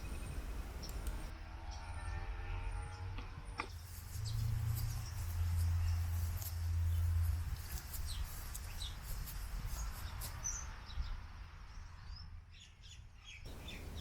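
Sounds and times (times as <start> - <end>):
small birds chirping: 0.0 - 1.3, 3.8 - 14.0
steady low rumble: 13.5 - 14.0.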